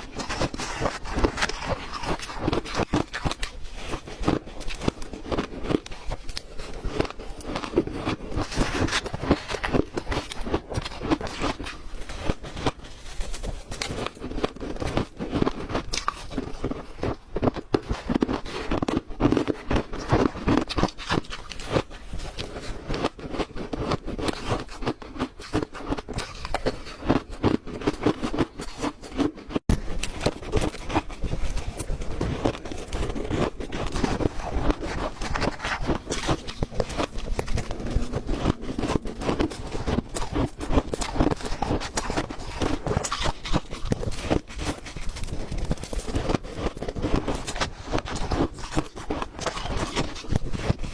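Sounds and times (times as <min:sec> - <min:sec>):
crunching and chewing ice: 0:00.0 - 0:50.9.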